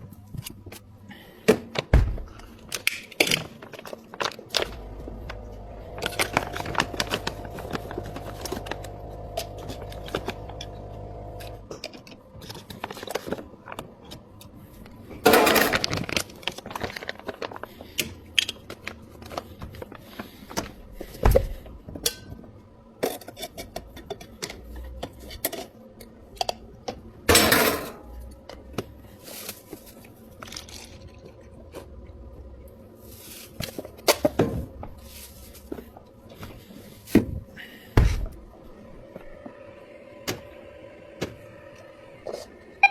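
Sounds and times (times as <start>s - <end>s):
machine humming: 4.6s - 11.7s.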